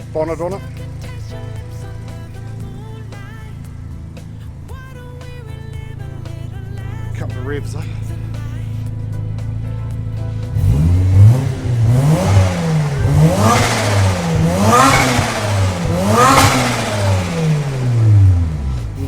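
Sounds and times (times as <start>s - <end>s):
rotary engine idling and revving: 0.0s - 19.0s.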